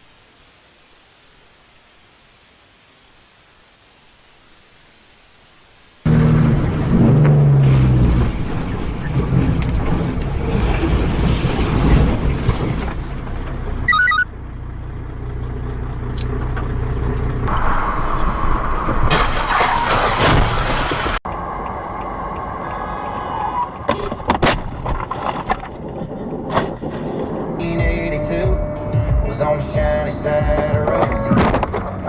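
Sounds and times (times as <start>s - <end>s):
vehicle engine: 6.1s - 19.4s
road noise: 6.1s - 31.0s.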